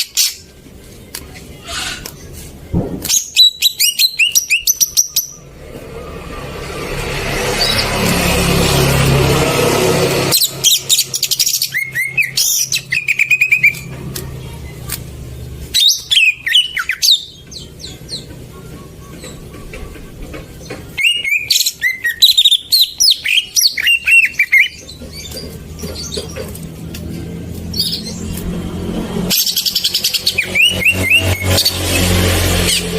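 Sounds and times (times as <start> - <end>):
bird chirping and whistling: 3.0 - 5.4, 10.3 - 13.9, 15.7 - 20.0, 20.7 - 26.4, 27.7 - 28.4, 29.3 - 32.9
loud rushing noise: 5.4 - 11.1.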